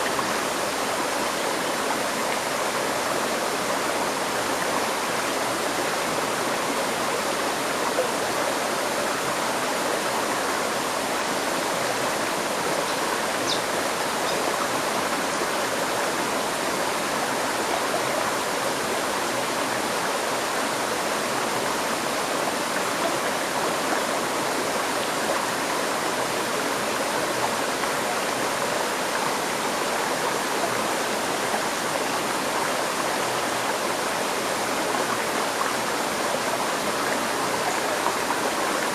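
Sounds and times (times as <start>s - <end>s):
river stream flowing: 0.0s - 38.9s
faint high bird chirp: 13.4s - 14.4s.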